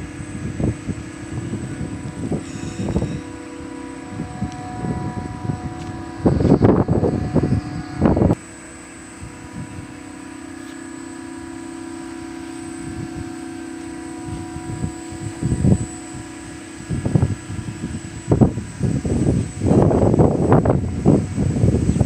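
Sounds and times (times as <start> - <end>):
loud low rumbles: 0.0 - 22.0
machinery humming: 0.0 - 22.0.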